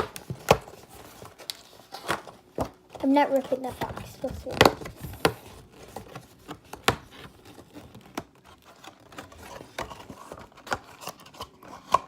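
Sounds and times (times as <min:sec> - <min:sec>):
cardboard box clicks and taps: 0:04.5 - 0:07.1.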